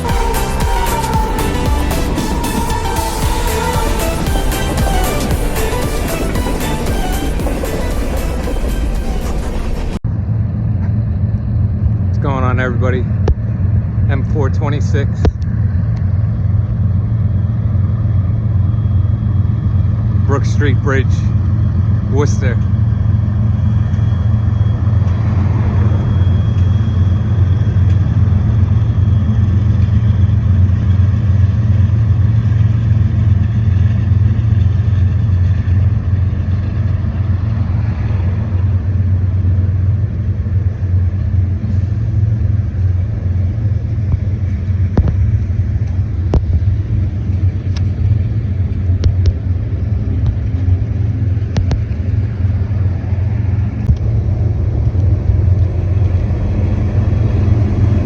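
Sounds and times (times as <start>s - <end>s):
train rumbling past: 0.0s - 58.0s.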